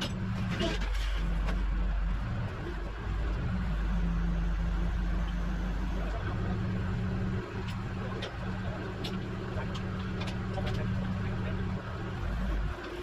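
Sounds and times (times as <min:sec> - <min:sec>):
truck engine running at low revs: 0:00.0 - 0:13.0.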